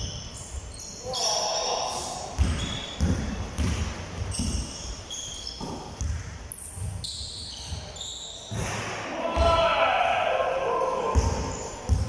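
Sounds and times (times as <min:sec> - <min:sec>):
shoe soles squeaking: 0:00.0 - 0:03.1, 0:04.2 - 0:08.6, 0:11.2 - 0:12.0
balls bouncing on hard court: 0:02.3 - 0:09.7, 0:11.0 - 0:12.0.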